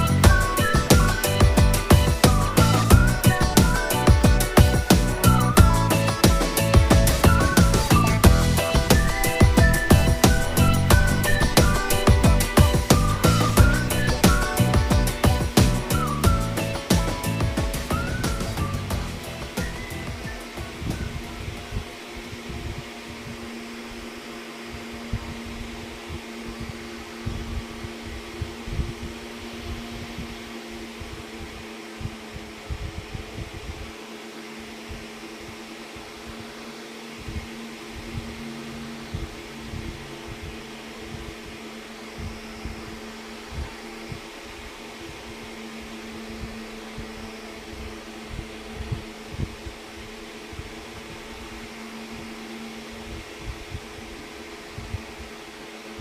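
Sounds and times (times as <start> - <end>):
soft low thumps: 0.0 - 34.0, 34.6 - 55.4
mechanical hum with low tones: 0.0 - 56.0.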